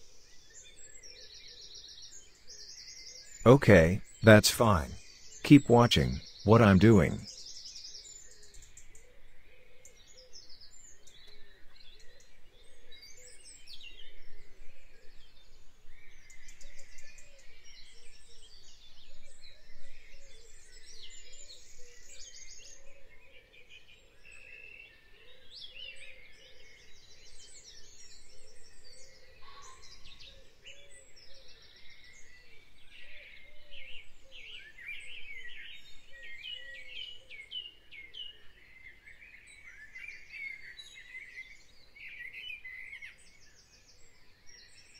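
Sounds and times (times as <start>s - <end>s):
birds chirping and twittering: 23.7s - 44.9s.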